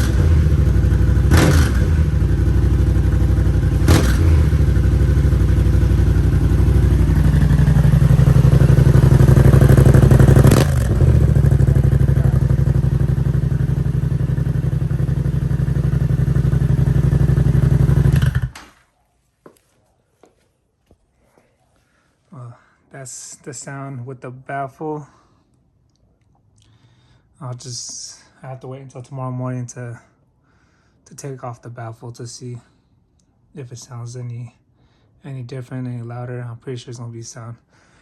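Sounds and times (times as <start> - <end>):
motorcycle engine idling and revving: 0.0 - 18.6.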